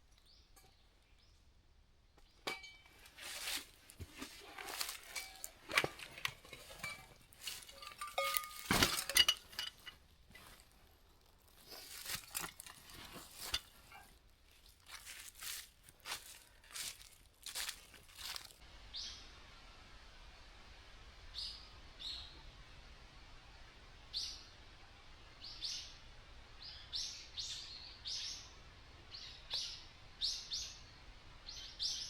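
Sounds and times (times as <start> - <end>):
rustling and crinkling: 2.5 - 18.6
light clinks: 5.0 - 10.6.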